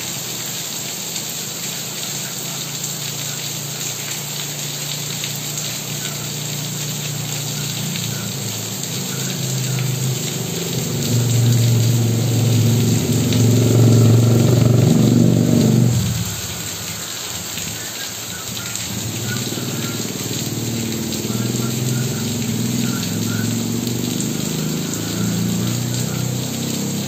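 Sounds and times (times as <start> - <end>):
steady rain falling: 0.0 - 27.0
low engine hum: 5.2 - 16.9, 18.7 - 27.0.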